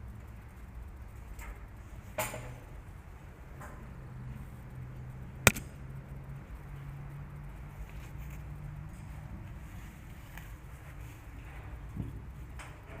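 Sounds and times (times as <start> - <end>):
low steady hum: 0.0 - 12.7
sharp click: 5.5 - 5.7.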